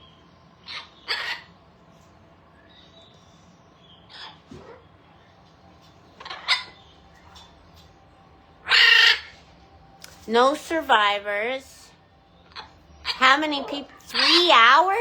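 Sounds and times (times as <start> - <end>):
parrots squawking: 0.6 - 1.6, 3.9 - 4.9, 6.1 - 7.5, 8.6 - 9.4, 12.4 - 15.0.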